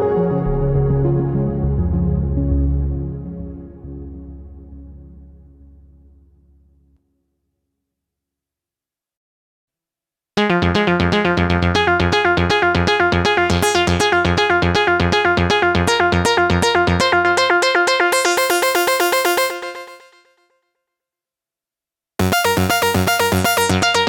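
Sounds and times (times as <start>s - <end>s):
held synth chords: 10.4s - 20.2s, 22.2s - 24.0s
synthesizer sequenced pattern: 10.4s - 20.2s, 22.2s - 24.0s.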